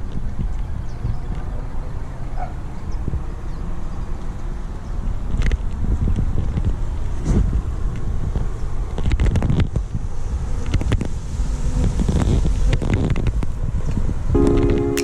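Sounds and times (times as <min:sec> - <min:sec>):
wind noise on microphone: 0:00.0 - 0:15.0
synthesizer music: 0:14.4 - 0:15.0.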